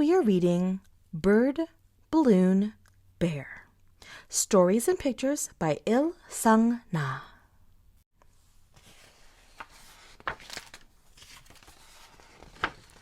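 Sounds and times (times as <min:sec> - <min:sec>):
book pages rustling and turning: 0:08.2 - 0:13.0.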